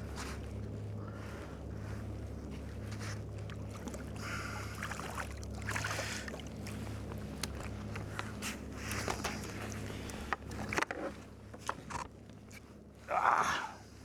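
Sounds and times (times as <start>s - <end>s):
steady low hum: 0.0s - 14.0s
water splashing against hull: 2.5s - 12.0s.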